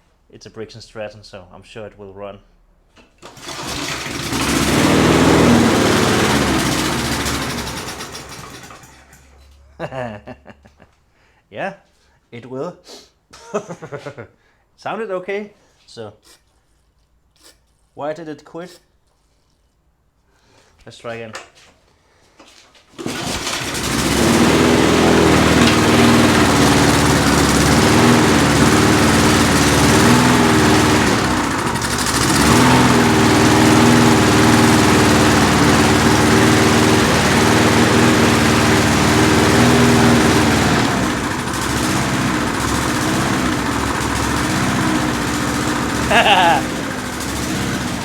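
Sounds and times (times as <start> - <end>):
lawn mower engine running: 3.2 - 9.3, 22.9 - 48.0.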